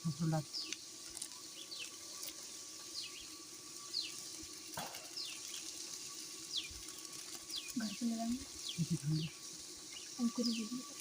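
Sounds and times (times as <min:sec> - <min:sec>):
running water hiss: 0:00.0 - 0:11.0.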